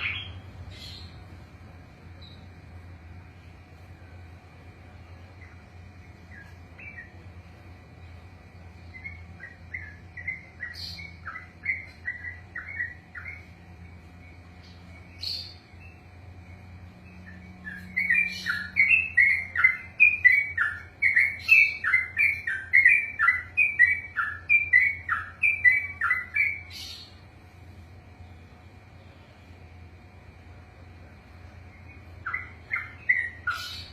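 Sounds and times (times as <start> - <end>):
bird singing whistled notes: 0.0 - 1.2, 2.2 - 2.5, 6.2 - 7.2, 8.8 - 27.2, 31.7 - 33.9.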